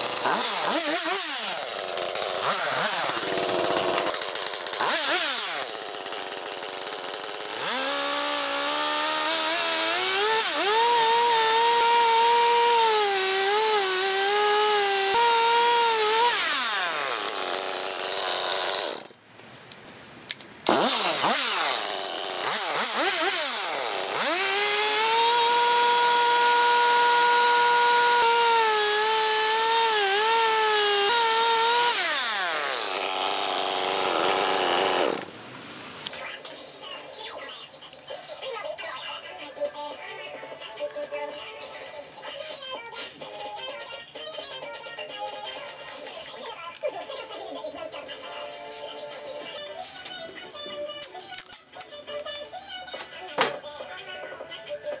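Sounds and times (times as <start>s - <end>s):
chainsaw cutting wood: 0.0s - 19.2s, 20.6s - 35.3s.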